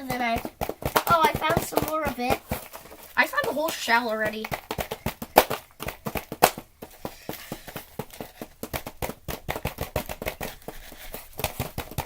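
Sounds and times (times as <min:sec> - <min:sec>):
tools chipping and scraping plaster: 0:00.0 - 0:12.0.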